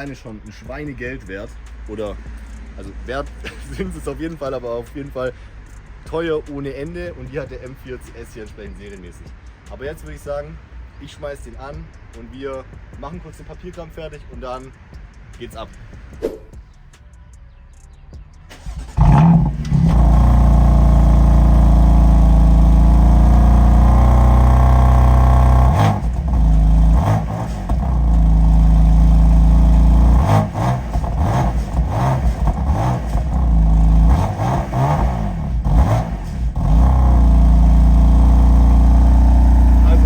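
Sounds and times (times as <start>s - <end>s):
car engine starting and idling: 18.4s - 40.0s.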